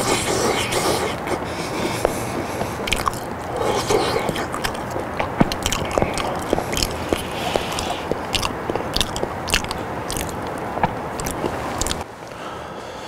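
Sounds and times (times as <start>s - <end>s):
person chewing with wet smacking: 0.0s - 12.0s
sharp mouth clicks: 0.0s - 12.0s.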